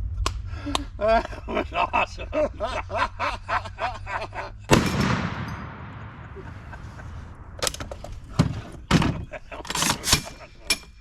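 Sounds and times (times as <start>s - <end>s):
loud blast with echo: 4.7s - 8.4s
sharp bangs: 4.7s - 10.4s.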